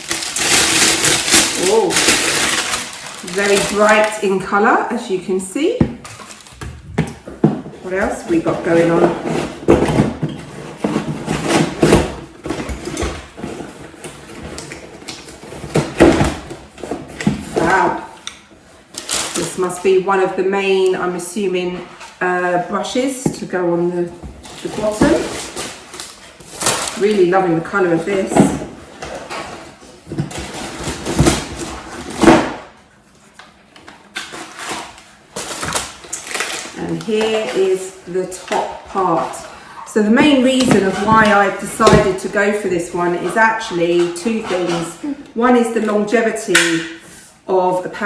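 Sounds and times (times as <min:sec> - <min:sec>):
packaging rustling: 0:00.0 - 0:05.0, 0:06.0 - 0:07.4, 0:08.7 - 0:19.6, 0:24.2 - 0:27.2, 0:28.2 - 0:42.6.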